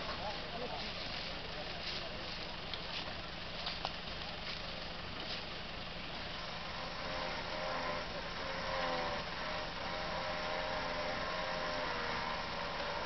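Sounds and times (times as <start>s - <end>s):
off-road vehicle engine running: 0.0s - 13.0s
wavering whine: 6.1s - 13.0s.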